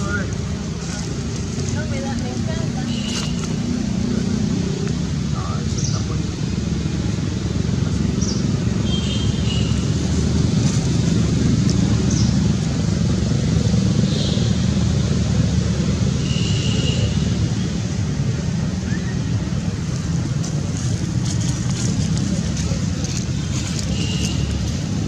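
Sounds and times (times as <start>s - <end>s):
low outdoor rumble: 17.4s - 25.0s.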